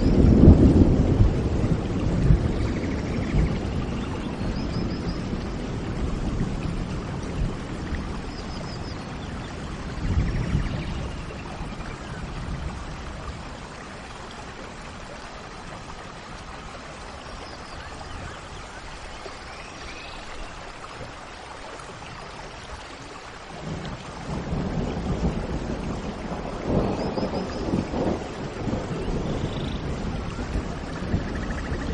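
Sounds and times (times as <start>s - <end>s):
low roll of thunder: 0.0s - 15.1s, 23.6s - 31.9s
steady rain: 0.0s - 31.9s.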